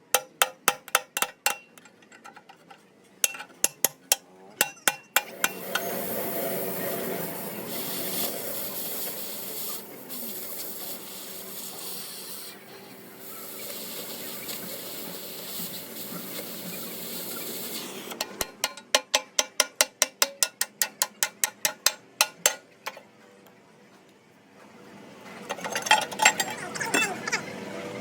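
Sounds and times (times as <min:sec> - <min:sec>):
steady hiss: 0:05.5 - 0:18.2.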